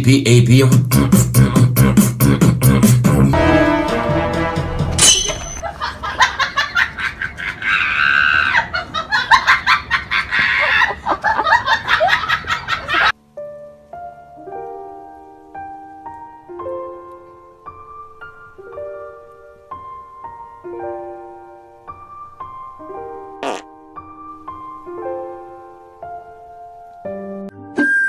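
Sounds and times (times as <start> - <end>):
music with pulsing vocal sounds: 0.0 - 4.9
soft piano melody: 13.1 - 27.8.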